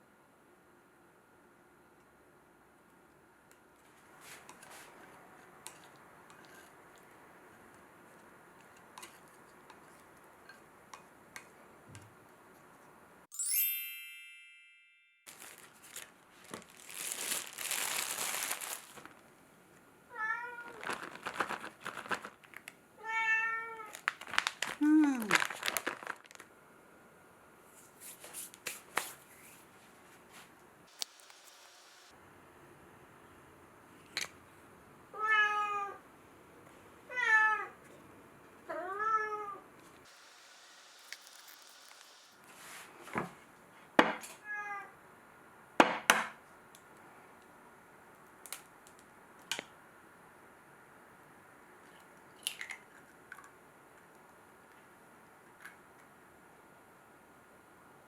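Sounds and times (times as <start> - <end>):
crinkling rustle: 15.3 - 19.3, 20.6 - 22.7, 23.8 - 26.5
cat meowing: 20.1 - 20.8, 23.0 - 23.9, 35.2 - 36.0.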